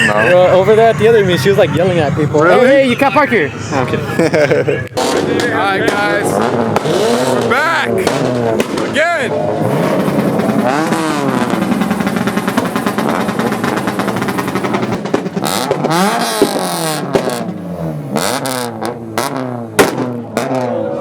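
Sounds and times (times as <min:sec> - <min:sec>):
car engines revving: 0:00.0 - 0:21.0
sharp cracks: 0:04.9 - 0:17.6, 0:18.2 - 0:20.7.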